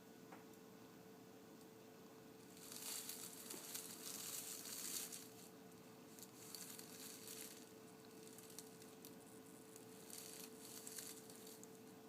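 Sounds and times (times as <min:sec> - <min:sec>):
faint steady hum: 0:00.0 - 0:12.0
soft rustling and crinkling: 0:02.4 - 0:12.0.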